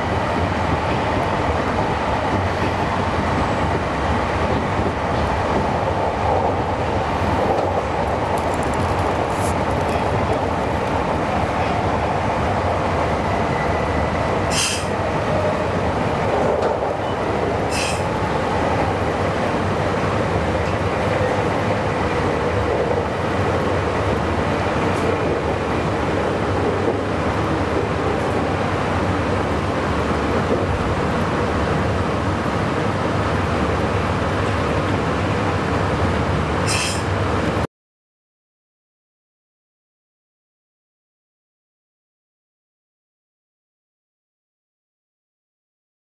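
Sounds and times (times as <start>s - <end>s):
train wheels rumbling on rail: 0.0s - 37.7s.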